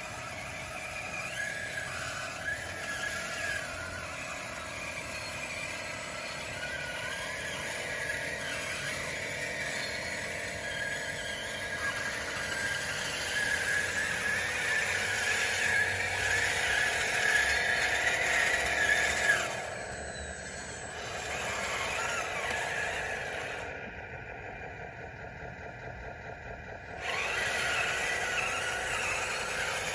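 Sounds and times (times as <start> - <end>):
toy bulldozer drive whine: 0.0 - 29.9.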